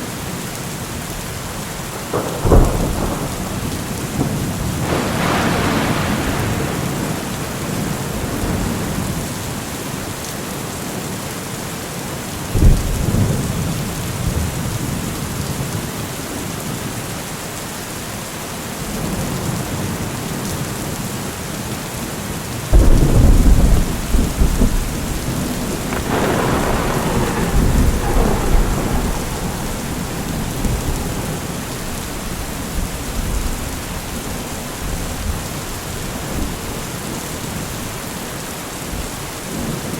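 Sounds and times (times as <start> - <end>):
steady rain: 0.0 - 39.9
thunder rumbling: 2.0 - 9.6, 22.7 - 37.7
thunderclap: 2.0 - 9.6, 12.6 - 15.0, 22.7 - 36.8.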